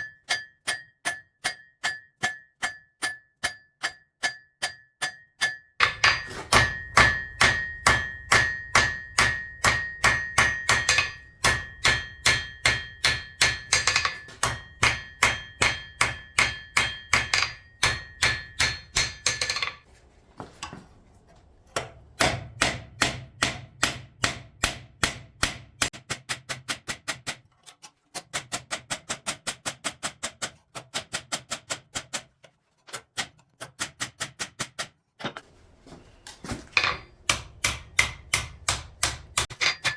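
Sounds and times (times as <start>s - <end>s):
hammer blows on steel anvil: 5.0s - 19.8s, 36.7s - 39.9s.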